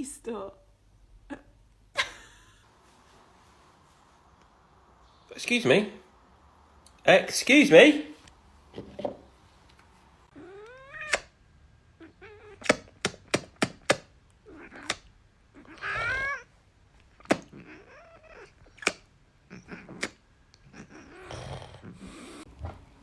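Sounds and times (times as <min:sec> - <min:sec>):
cat meowing: 0:10.3 - 0:11.3, 0:12.0 - 0:12.7, 0:14.4 - 0:16.5, 0:17.4 - 0:18.9, 0:19.5 - 0:21.3.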